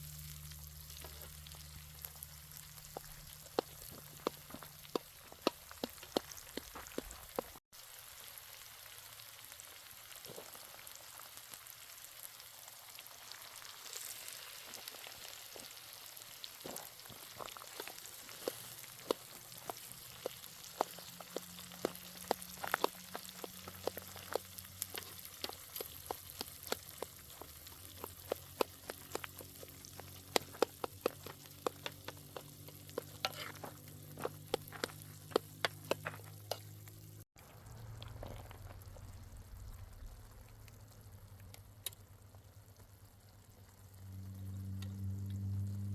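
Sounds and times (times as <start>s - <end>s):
food sizzling in a pan: 0.0s - 39.6s
sharp clicks and taps: 19.1s - 36.7s.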